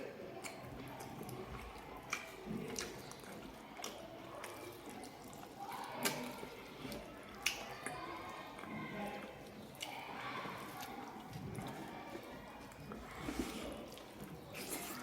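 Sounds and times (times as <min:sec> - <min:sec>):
person chewing with lip smacks: 0:00.0 - 0:15.0
sharp mouth clicks: 0:00.3 - 0:01.4, 0:02.0 - 0:05.4.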